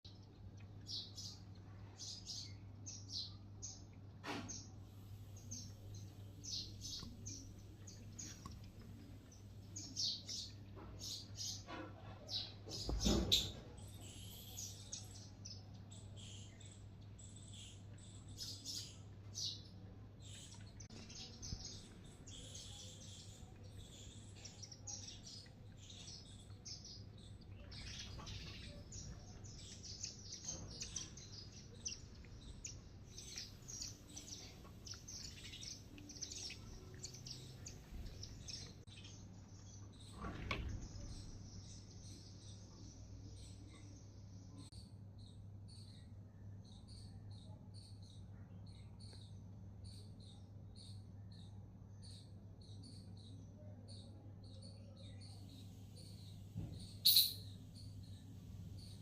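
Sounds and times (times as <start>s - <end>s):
bird chirps and tweets: 0.1s - 59.0s
steady low hum: 0.2s - 11.5s.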